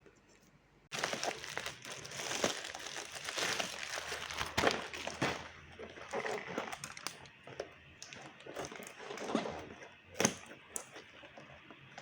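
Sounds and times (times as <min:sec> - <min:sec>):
packaging crinkling and rustling: 0:00.9 - 0:12.0.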